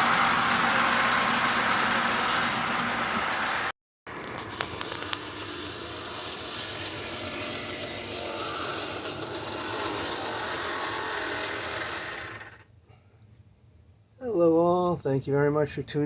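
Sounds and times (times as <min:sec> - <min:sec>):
wheel and gear rattle: 0:00.0 - 0:12.6
model locomotive motor hum: 0:00.0 - 0:12.7.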